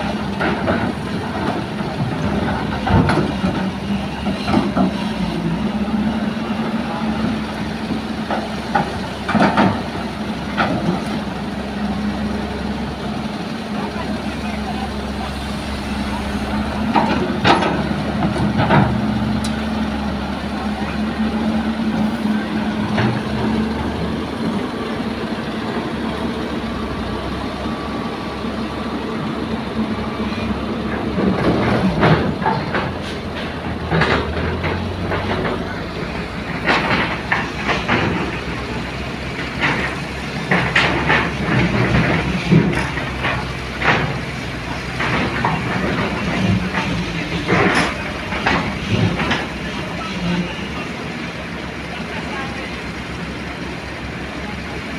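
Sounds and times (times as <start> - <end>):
heavy diesel machinery running: 0.0 - 54.9
metal clanks and knocks: 8.2 - 11.2, 16.8 - 19.6, 30.9 - 50.6.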